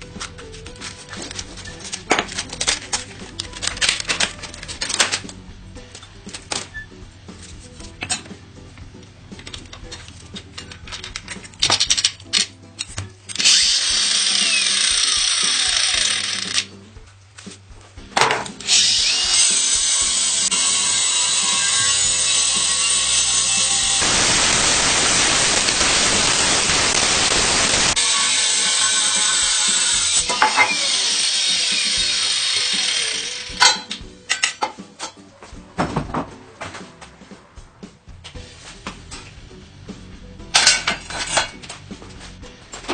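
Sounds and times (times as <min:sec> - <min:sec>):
power tool running: 0:13.3 - 0:16.7, 0:18.6 - 0:34.0.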